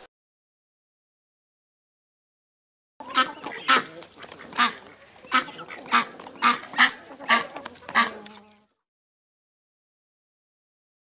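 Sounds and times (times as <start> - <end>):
waterfowl calling: 3.0 - 8.6.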